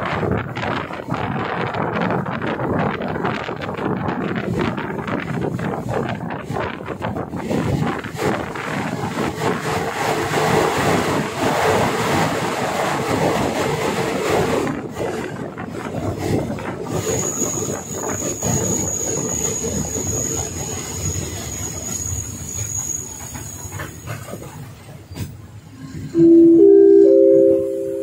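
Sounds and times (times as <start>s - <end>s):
train wheels rumbling on rails: 0.0s - 26.4s
high-pitched wheel squeal: 17.0s - 24.0s.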